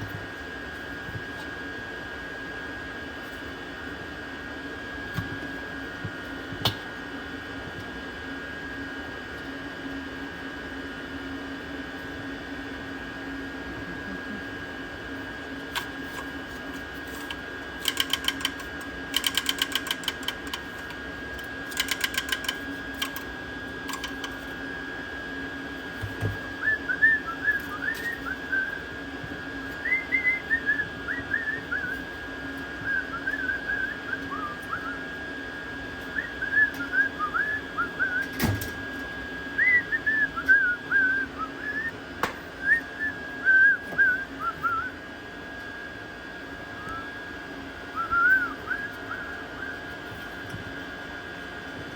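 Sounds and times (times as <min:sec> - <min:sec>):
steady mechanical hum: 0:00.0 - 0:51.9
rapid even clicking: 0:17.2 - 0:23.3, 0:23.9 - 0:24.4.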